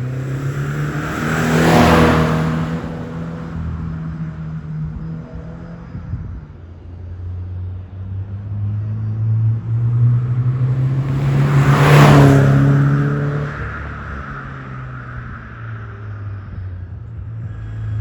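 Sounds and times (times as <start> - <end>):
car driving past: 0.0 - 6.0, 8.4 - 16.6.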